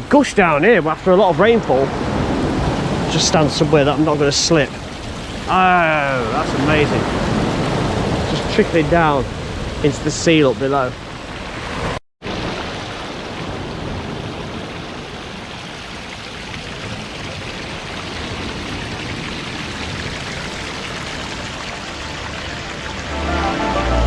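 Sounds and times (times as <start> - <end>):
small waterfall splashing: 0.4 - 24.0
music: 21.8 - 24.0.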